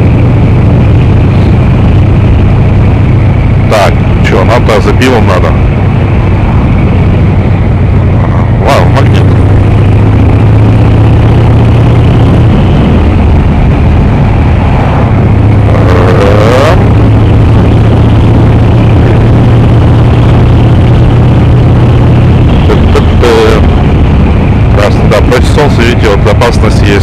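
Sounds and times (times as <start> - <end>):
motorcycle engine running: 0.0 - 27.0
wind rushing noise: 0.0 - 27.0
brief rising whine: 5.4 - 25.6.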